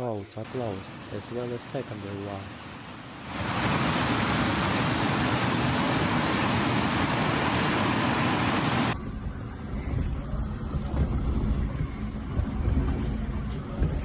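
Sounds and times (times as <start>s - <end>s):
rushing torrential water: 0.4s - 9.0s.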